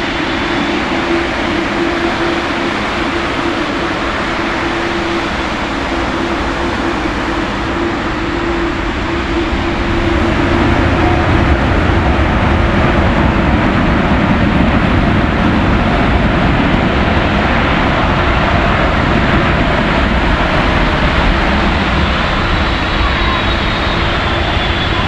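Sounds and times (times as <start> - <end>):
jet airliner approaching: 0.0 - 25.0.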